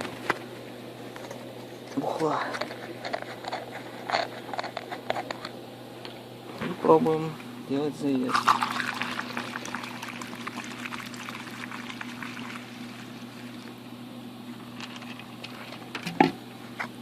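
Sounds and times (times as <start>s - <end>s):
petrol pouring from container: 8.3s - 13.7s.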